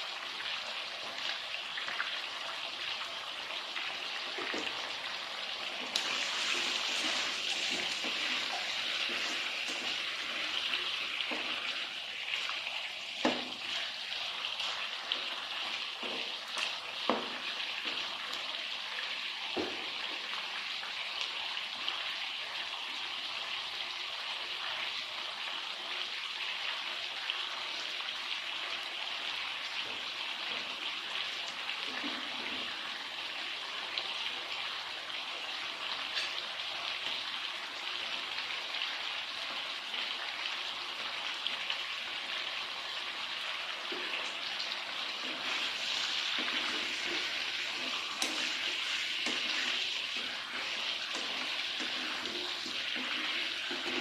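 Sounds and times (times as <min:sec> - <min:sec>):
food sizzling in a frying pan: 0:05.6 - 0:18.3, 0:43.4 - 0:54.0.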